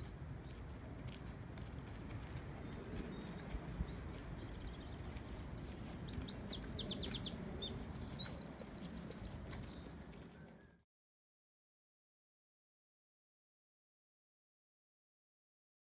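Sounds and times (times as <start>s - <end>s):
songbird singing falling notes: 5.8s - 10.8s.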